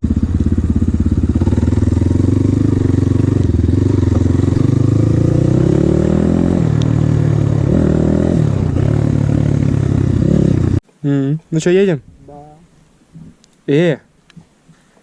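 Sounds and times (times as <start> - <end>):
motorcycle engine revving: 0.0 - 10.8.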